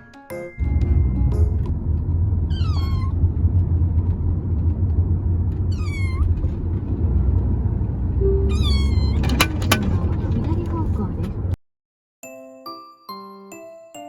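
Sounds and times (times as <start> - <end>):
steady low rumble: 0.6 - 11.6
kitten meowing: 2.4 - 3.2, 5.7 - 6.4, 8.2 - 9.4.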